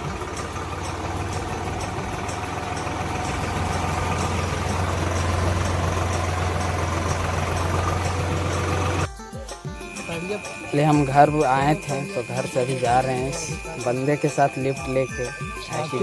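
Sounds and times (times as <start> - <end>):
tractor engine droning: 0.0 - 9.1, 9.9 - 16.0.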